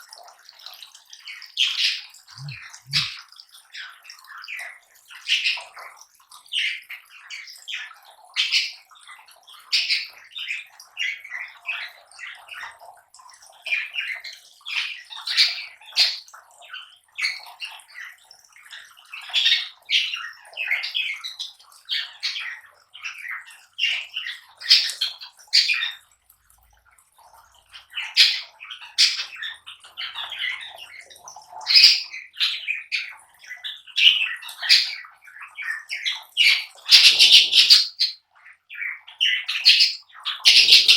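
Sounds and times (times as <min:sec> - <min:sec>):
lovebirds chirping and squawking: 0:02.4 - 0:03.2, 0:36.1 - 0:38.2, 0:39.2 - 0:40.9.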